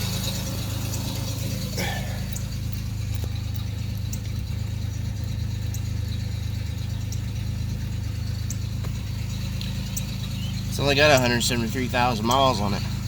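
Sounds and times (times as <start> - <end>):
car engine idling: 0.0 - 13.0
faint light ticks: 2.3 - 4.4, 5.2 - 5.9, 7.1 - 7.3, 8.4 - 10.1.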